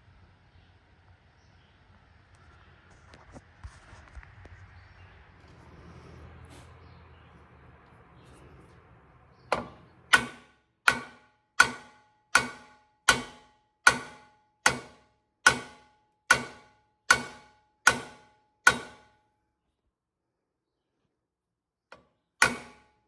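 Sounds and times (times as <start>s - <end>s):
hammer blows ringing on metal: 9.6s - 19.2s, 22.4s - 22.9s.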